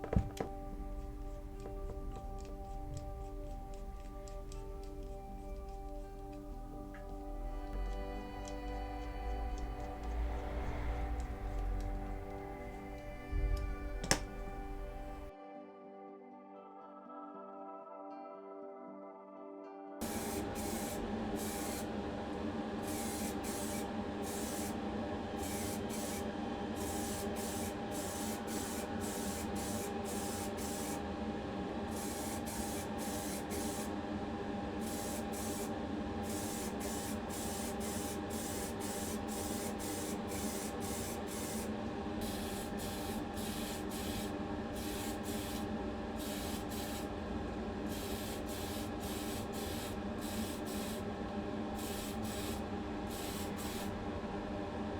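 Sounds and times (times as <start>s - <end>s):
motor or fan humming: 0.0s - 15.3s, 20.0s - 31.0s, 34.8s - 51.1s
spray paint hissing: 0.0s - 15.3s, 20.0s - 22.0s, 22.8s - 31.0s, 31.9s - 34.0s, 34.8s - 47.2s, 47.9s - 51.1s, 51.8s - 54.0s.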